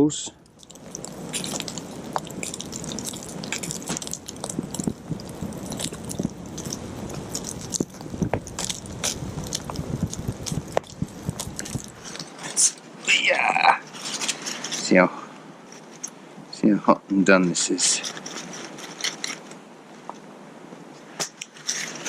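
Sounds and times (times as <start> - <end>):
campfire crackling and popping: 0.1 - 15.0.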